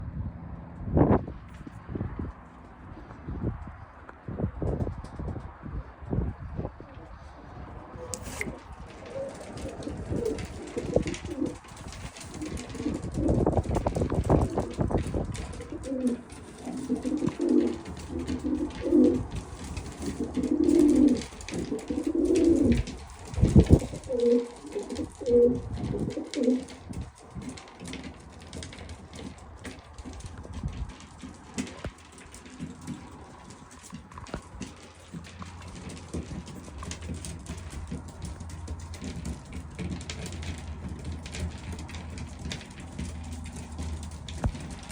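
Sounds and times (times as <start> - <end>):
pigeons cooing: 7.2 - 28.0.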